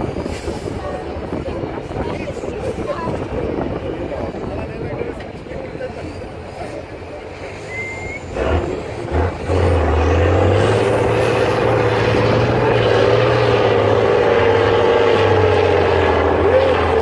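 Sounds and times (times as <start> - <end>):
diesel truck engine revving: 7.7 - 17.0.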